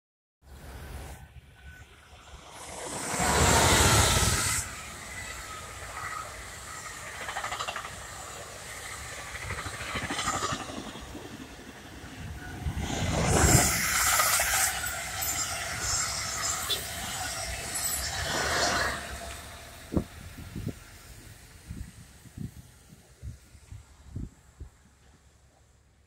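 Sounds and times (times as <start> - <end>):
train passing at speed: 0.5 - 26.0
train wheels rumbling on rails: 0.6 - 25.6.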